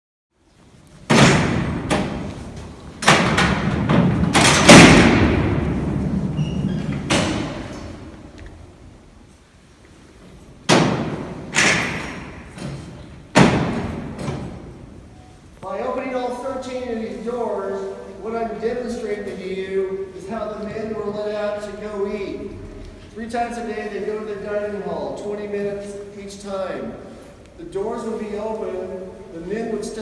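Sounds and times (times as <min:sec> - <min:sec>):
steel cell doors clanking: 0:01.0 - 0:08.7, 0:10.4 - 0:15.2.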